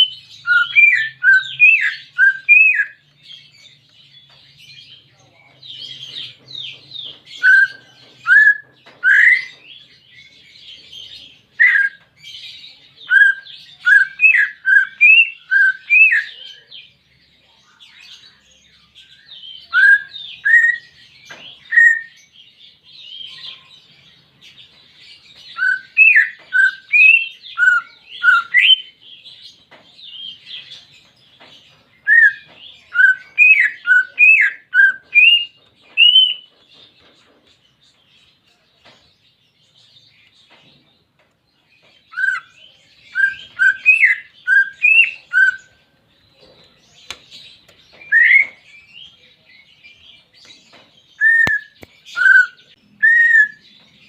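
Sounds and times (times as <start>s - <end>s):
bird whistling song: 0.0s - 3.5s, 7.0s - 9.9s, 11.5s - 12.1s, 13.0s - 16.4s, 19.1s - 22.2s, 25.4s - 29.0s, 32.0s - 36.5s, 42.0s - 45.8s, 47.1s - 49.1s, 51.1s - 53.9s.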